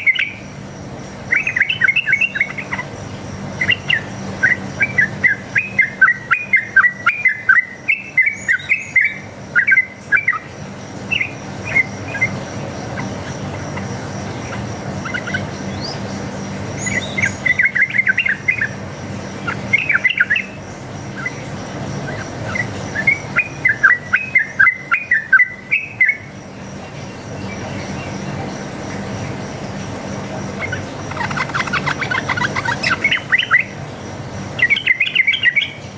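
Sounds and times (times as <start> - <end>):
bulbul chirping calls: 1.3 - 26.3, 30.4 - 33.9.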